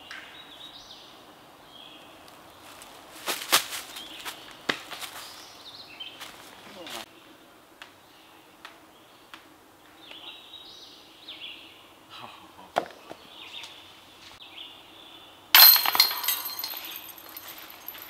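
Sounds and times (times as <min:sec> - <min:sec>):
disc hitting basket chains: 0:15.6 - 0:18.0.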